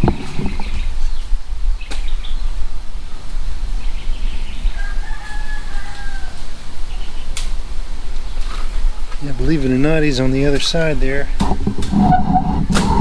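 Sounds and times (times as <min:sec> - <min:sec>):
rooster crowing: 0:04.6 - 0:07.1.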